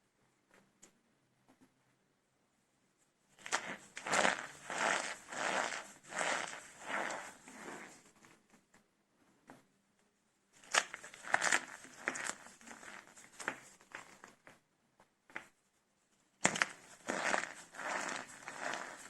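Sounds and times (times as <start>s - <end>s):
soap crackling and crunching: 3.4s - 7.8s, 10.6s - 14.4s, 16.4s - 19.0s.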